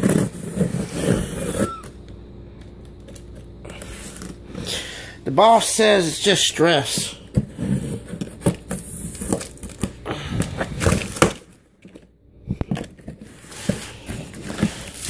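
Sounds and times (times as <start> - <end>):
cardboard crinkling and tearing: 0.0 - 1.9, 7.4 - 12.0, 12.7 - 15.0.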